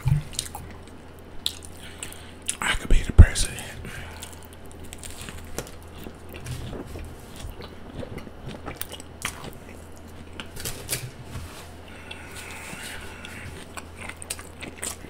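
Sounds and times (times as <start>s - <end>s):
steady low hum: 0.0s - 15.0s
close chewing: 4.1s - 11.0s, 11.9s - 15.0s.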